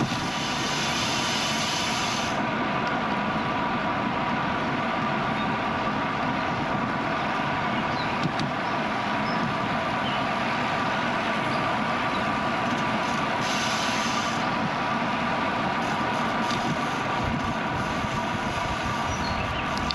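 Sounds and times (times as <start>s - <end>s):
bicycle tyres rolling on road: 0.0s - 19.9s
constant hum: 0.0s - 19.9s
wind on microphone: 16.3s - 19.9s.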